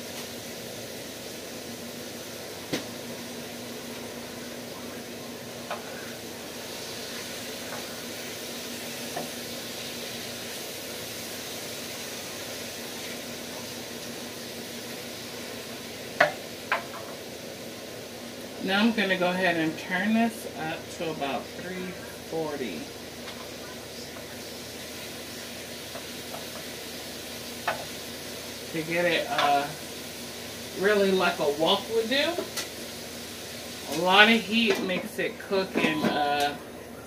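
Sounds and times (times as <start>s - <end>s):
food sizzling in a skillet: 0.0s - 37.0s.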